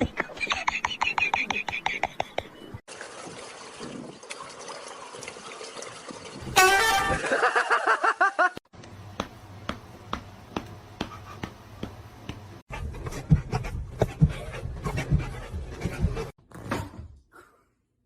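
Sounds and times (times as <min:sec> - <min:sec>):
dog panting: 0:12.7 - 0:16.3.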